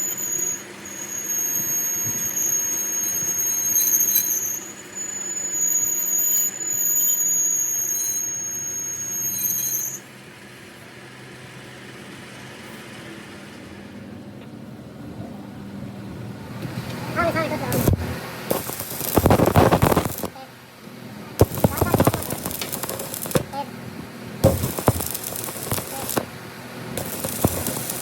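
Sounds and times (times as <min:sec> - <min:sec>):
high-pitched metal squeal: 0:00.2 - 0:10.1
low hum: 0:21.2 - 0:28.0.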